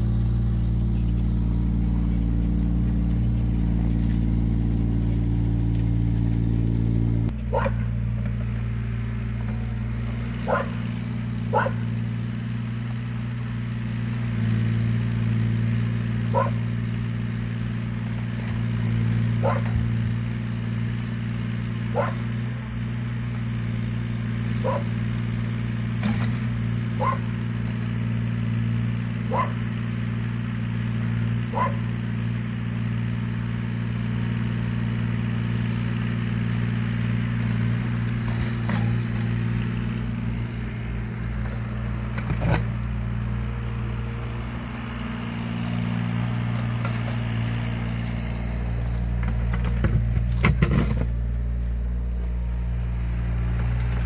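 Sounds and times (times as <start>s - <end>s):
mini excavator diesel engine running: 0.0s - 54.0s
dog barking: 7.5s - 7.8s, 10.4s - 10.8s, 11.5s - 11.9s, 16.3s - 16.6s, 19.4s - 19.8s, 21.9s - 22.3s, 24.6s - 25.0s, 27.0s - 27.3s, 29.3s - 29.6s, 31.5s - 31.9s.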